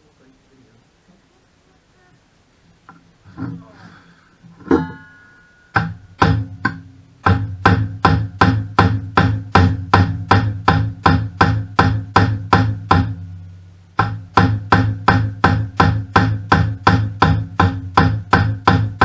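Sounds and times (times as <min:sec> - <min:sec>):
hammer striking metal with ringing: 0:04.6 - 0:13.2.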